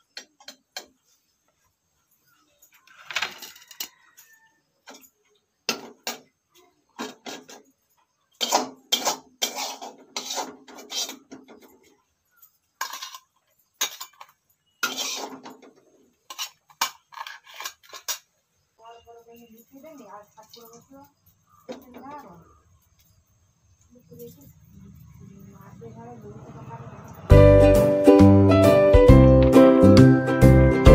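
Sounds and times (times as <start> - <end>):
utensils scraping steel pots: 7.0 - 12.0, 12.8 - 18.3.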